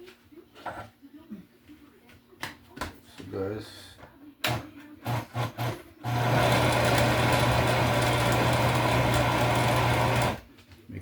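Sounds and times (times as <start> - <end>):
electric mixer running: 5.1 - 10.4.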